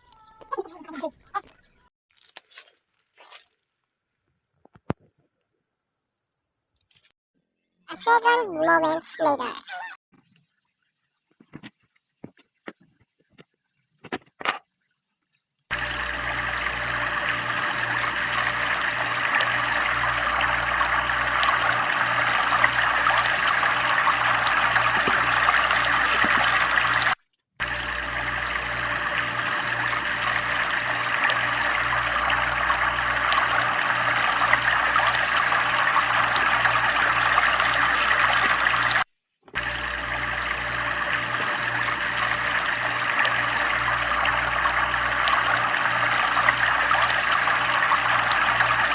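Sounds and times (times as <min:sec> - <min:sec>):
water rushing and splashing: 0:15.7 - 0:39.0, 0:40.2 - 0:48.9.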